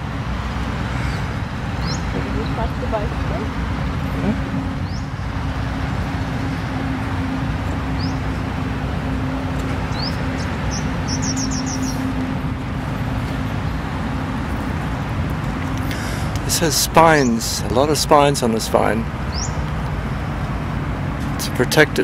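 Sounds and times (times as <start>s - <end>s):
bird chirping: 1.0s - 2.8s, 4.0s - 5.4s, 7.8s - 8.4s, 9.8s - 12.2s, 19.3s - 19.6s.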